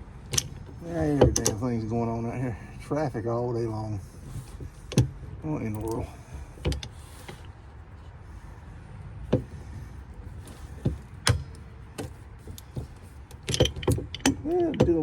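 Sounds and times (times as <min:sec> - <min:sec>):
tools clicking and knocking on metal: 0:00.2 - 0:01.9, 0:04.9 - 0:07.5, 0:09.3 - 0:15.0.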